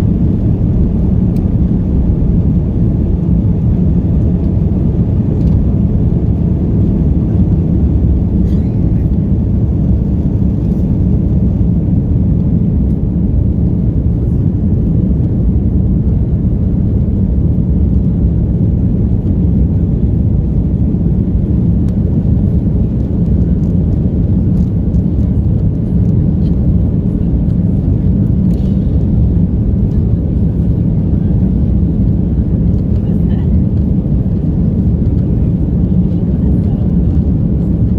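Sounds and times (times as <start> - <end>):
jet engine cabin rumble: 0.0 - 37.9.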